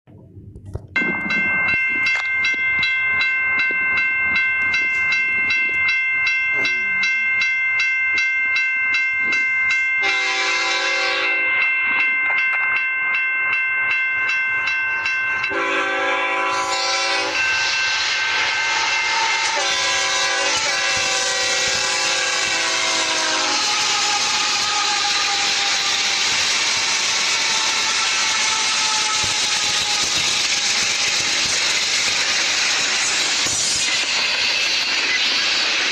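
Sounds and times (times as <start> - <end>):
train wheels rumbling on rails: 0.1 - 35.9
railway crossing bell ringing: 0.9 - 35.9
locomotive horn blasts: 10.0 - 11.5, 15.5 - 18.1, 18.7 - 26.1.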